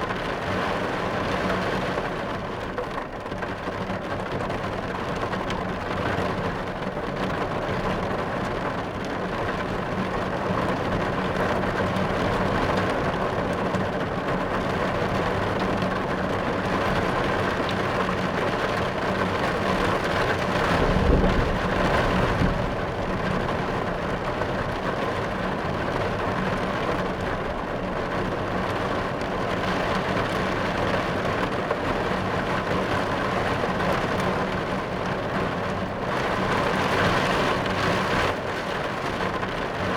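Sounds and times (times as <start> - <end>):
rain on car roof: 0.0 - 39.9
thunder rumbling: 19.8 - 26.3.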